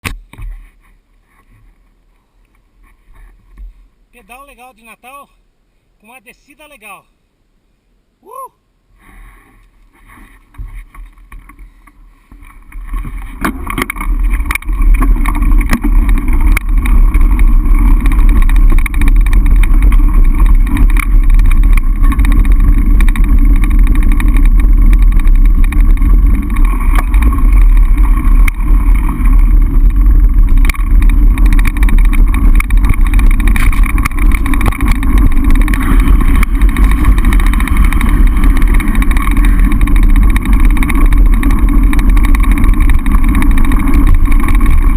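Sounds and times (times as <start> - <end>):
bike rattling over rough ground: 9.0 - 44.9
wind buffeting microphone: 10.5 - 44.9.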